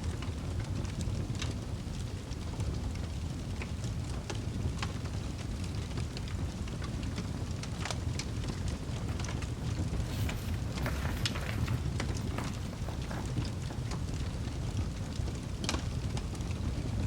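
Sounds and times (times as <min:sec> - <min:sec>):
fireplace crackling: 0:07.5 - 0:15.2.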